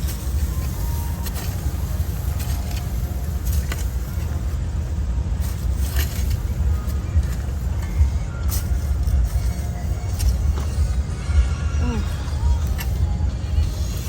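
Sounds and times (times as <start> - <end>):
digging in garden soil: 0.0 - 10.7
steady low rumble: 0.0 - 14.0.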